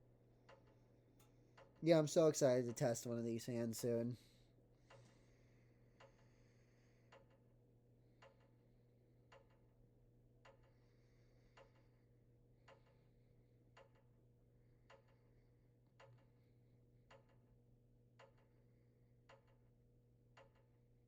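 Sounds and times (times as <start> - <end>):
faint ticks: 4.9 - 7.6, 8.2 - 8.6, 9.3 - 9.8, 10.4 - 12.0, 12.6 - 17.5, 18.1 - 19.7, 20.3 - 20.8.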